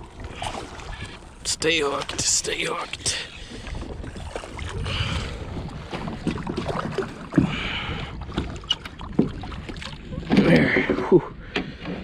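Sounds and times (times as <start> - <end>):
water splashing around kayak: 0.0 - 12.0
wind on microphone: 3.3 - 12.0.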